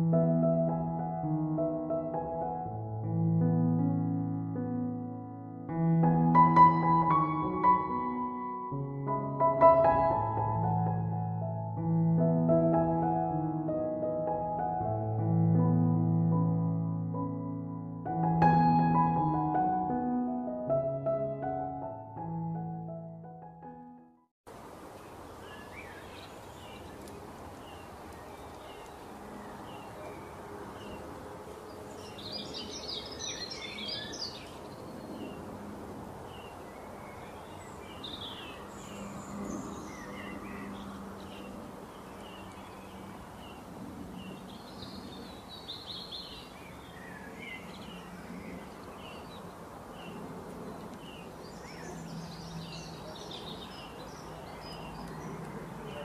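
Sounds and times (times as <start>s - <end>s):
steady background hiss: 24.5s - 48.0s
birds chirping: 25.0s - 35.5s, 36.3s - 56.0s.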